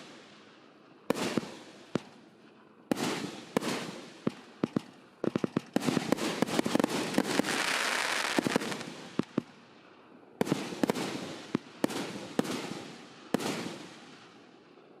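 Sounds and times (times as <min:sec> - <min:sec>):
firework bangs: 0:02.9 - 0:09.5
firework crackling: 0:02.9 - 0:09.5.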